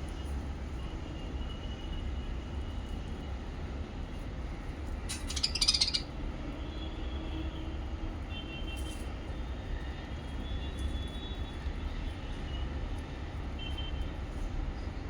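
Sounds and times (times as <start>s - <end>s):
lovebirds chirping: 5.1s - 6.1s.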